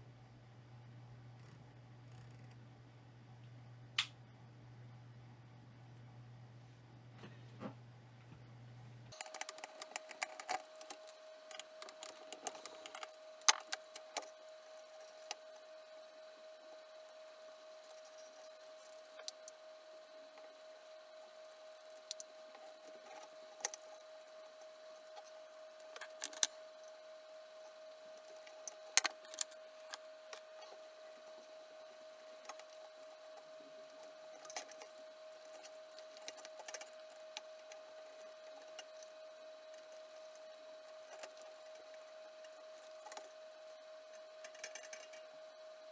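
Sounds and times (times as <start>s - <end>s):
faint high hum: 0.0s - 45.9s
tools clicking and rattling: 9.1s - 14.3s.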